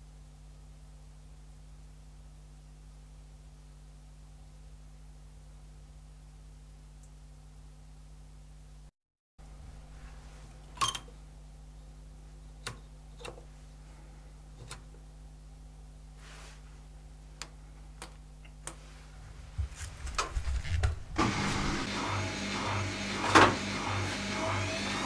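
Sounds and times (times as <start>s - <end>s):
low steady hum: 0.0s - 21.9s
washing machine clicks: 10.7s - 11.2s, 12.6s - 13.5s, 14.6s - 14.9s
drum motor pulsing whine: 20.4s - 25.0s.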